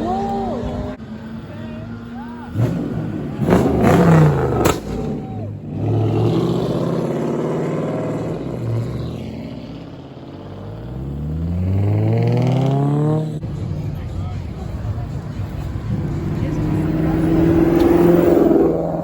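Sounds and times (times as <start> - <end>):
car engine revving: 0.0 - 19.0
engine backfire crack: 2.6 - 5.2.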